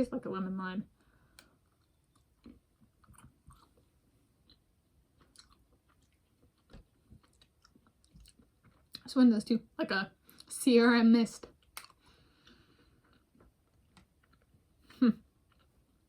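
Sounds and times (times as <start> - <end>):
faint chewing with mouth clicks: 1.0 - 9.1, 11.4 - 16.0.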